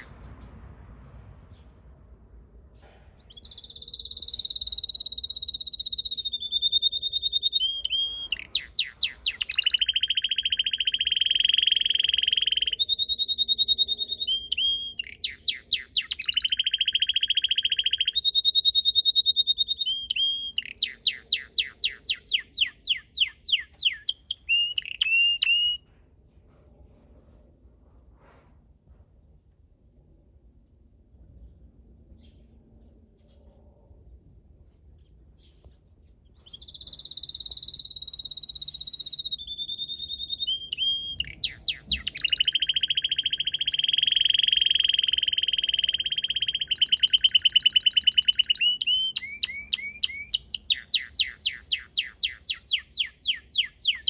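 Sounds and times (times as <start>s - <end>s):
canary singing trills: 3.2s - 25.8s, 36.3s - 54.0s.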